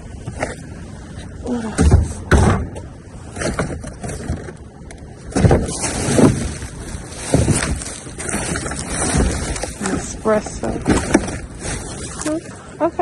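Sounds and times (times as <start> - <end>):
trash bags rustling: 5.2 - 12.6.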